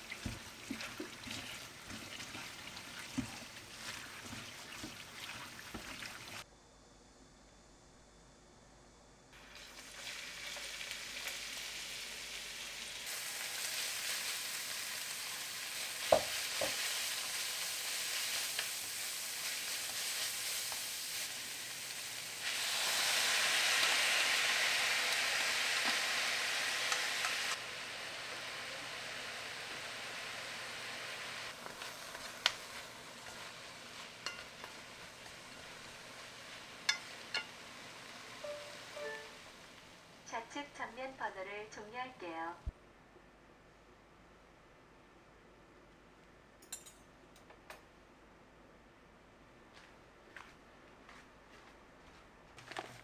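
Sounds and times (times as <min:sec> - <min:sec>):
potatoes sizzling in a frying pan: 0:00.0 - 0:06.4, 0:09.4 - 0:40.5
utensil tapping a pan: 0:16.0 - 0:16.8, 0:34.2 - 0:34.9, 0:36.8 - 0:37.6.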